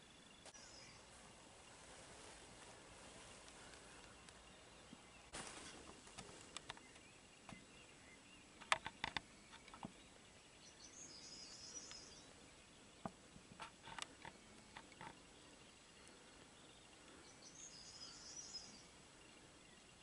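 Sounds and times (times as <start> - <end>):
bird twittering: 5.9 - 13.0, 14.2 - 19.0
sharp clicks: 8.6 - 9.9.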